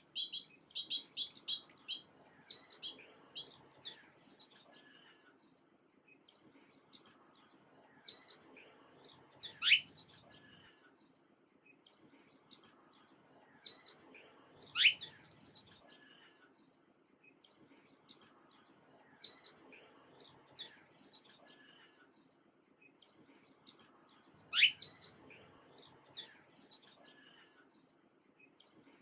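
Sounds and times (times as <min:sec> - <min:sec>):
small birds chirping: 0:00.0 - 0:29.0
loud upward-sweeping chirp: 0:09.5 - 0:09.9, 0:24.5 - 0:25.0.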